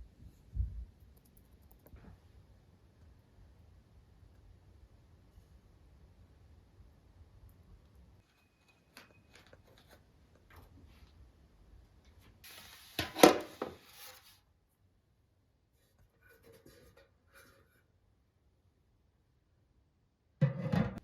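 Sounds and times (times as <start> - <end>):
sharp scrape with hiss: 12.4 - 14.4.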